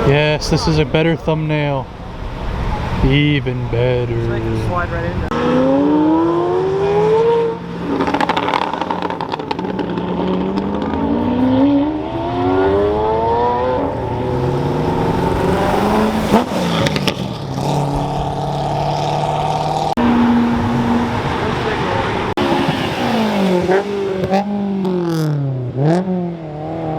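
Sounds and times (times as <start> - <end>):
car engines accelerating hard: 0.0 - 26.9.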